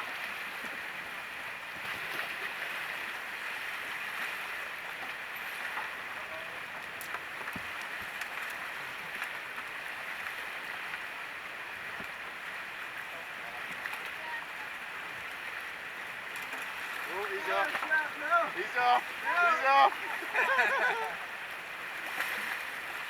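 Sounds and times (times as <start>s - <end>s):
white water rushing: 8.4s - 23.0s.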